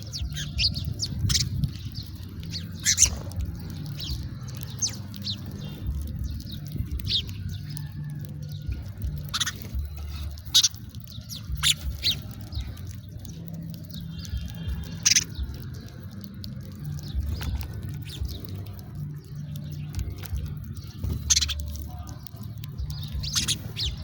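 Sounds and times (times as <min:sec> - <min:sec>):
low background rumble: 0:00.0 - 0:24.0
sparrows chirping: 0:00.0 - 0:24.0.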